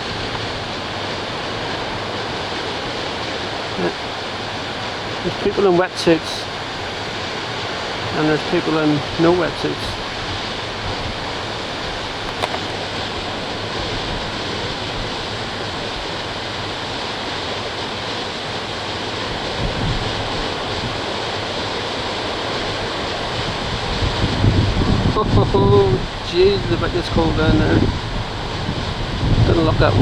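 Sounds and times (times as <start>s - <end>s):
wind buffeting microphone: 0.0s - 3.8s, 9.0s - 17.0s, 19.2s - 30.0s.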